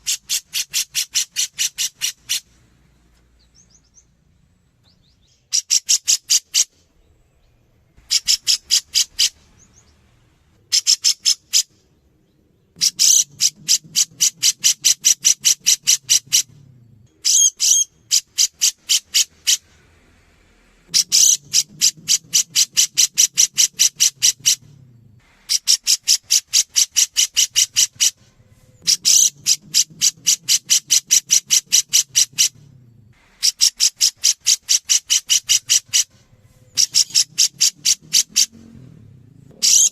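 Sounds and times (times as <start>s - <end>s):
bulbul rapid high-pitched calls: 0.0s - 2.6s, 4.9s - 6.8s, 8.0s - 10.0s, 10.7s - 11.8s, 12.7s - 16.5s, 17.1s - 19.8s, 20.9s - 24.7s, 25.3s - 32.6s, 33.3s - 38.8s, 39.5s - 39.9s.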